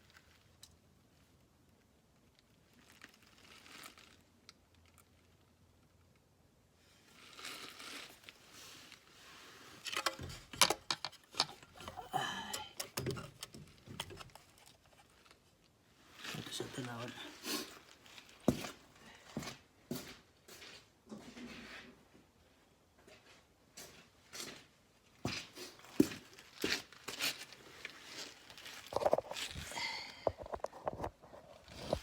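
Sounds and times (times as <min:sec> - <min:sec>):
tools clicking and clanking: 0:09.9 - 0:14.6.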